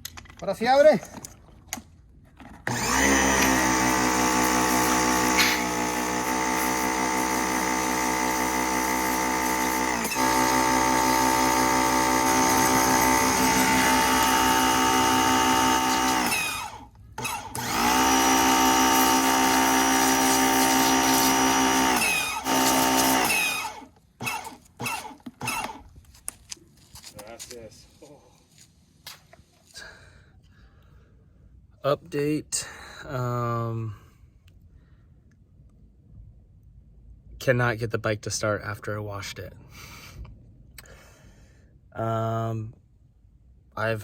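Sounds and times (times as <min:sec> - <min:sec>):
pressure washer motor whining: 0:02.6 - 0:25.8.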